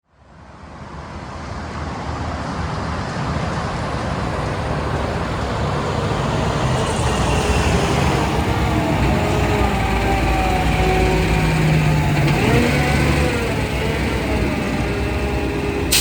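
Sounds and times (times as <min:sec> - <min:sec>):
road noise: 0:00.2 - 0:16.0
heavy truck engine running: 0:03.6 - 0:16.0.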